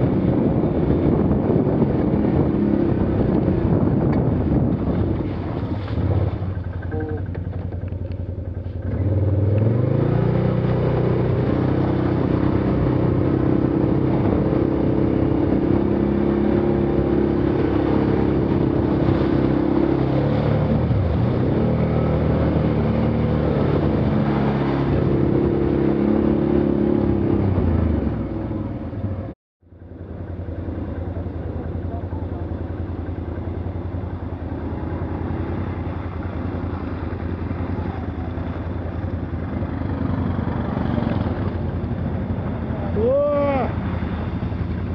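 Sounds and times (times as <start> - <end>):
quad bike engine at high revs: 8.8 - 28.2, 34.3 - 44.7.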